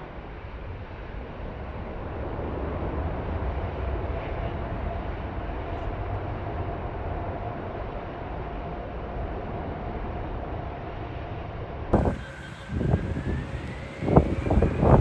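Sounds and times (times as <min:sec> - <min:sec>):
wind rumble on microphone: 0:00.0 - 0:15.0
jet engines whining: 0:12.0 - 0:15.0.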